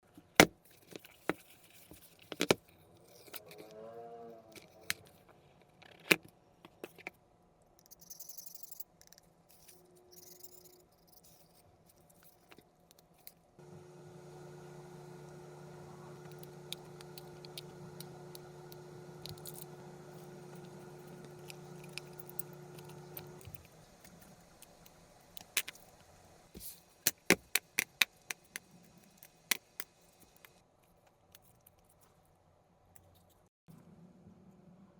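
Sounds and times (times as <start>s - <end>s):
tools clicking and scraping: 0.7s - 3.8s, 7.8s - 13.5s, 16.2s - 26.0s
steady electric hum: 13.6s - 26.6s.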